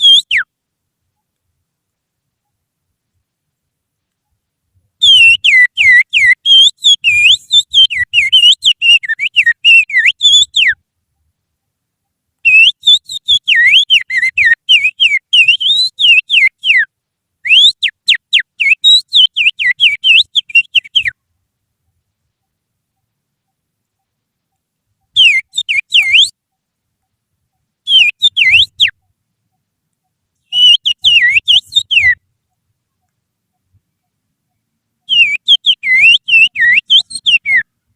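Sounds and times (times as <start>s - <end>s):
finger whistling birdsong: 0.0s - 0.5s, 5.0s - 10.8s, 12.4s - 21.2s, 25.1s - 26.4s, 27.9s - 29.1s, 30.4s - 32.2s, 35.0s - 37.7s.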